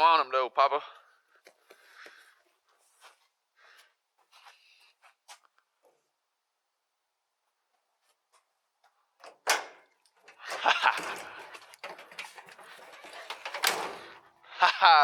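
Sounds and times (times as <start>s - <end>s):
clattering and rustling of objects: 8.1s - 14.5s.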